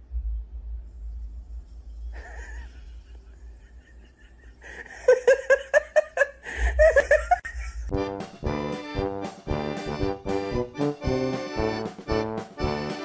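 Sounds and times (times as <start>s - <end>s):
person laughing hard: 2.2s - 7.9s.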